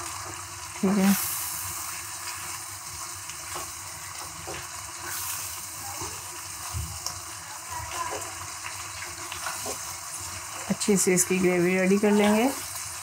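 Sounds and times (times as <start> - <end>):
curry sizzling and bubbling in a pan: 0.0 - 13.0.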